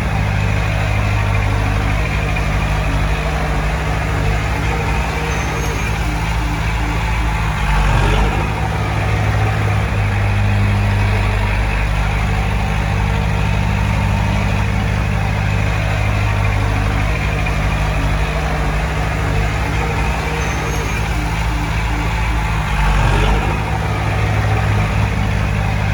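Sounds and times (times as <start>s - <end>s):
heavy diesel machinery humming: 0.0s - 25.9s.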